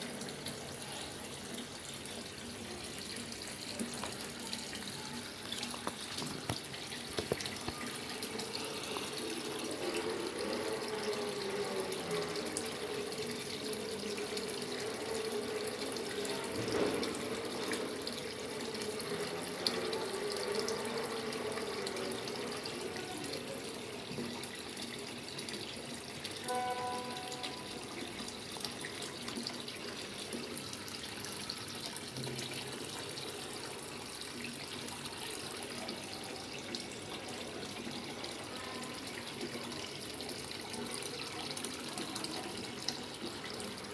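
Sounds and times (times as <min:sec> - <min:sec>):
water filling washing machine tub: 0:00.0 - 0:43.9
brief pitched tone: 0:26.4 - 0:28.0.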